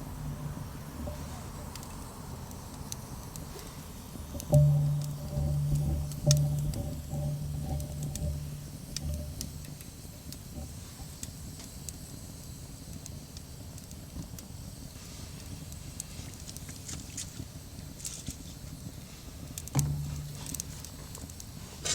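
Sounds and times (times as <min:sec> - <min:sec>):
low outdoor rumble: 0:00.0 - 0:16.5, 0:17.6 - 0:21.9
wood fire crackling: 0:00.0 - 0:21.9.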